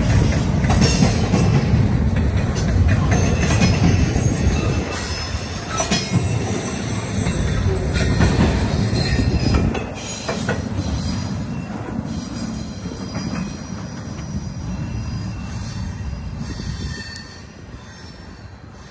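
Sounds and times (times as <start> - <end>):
wheels clacking over rail joints: 0.0 - 14.9
freight train rumbling: 0.0 - 18.9
high wheel squeal: 3.9 - 18.9.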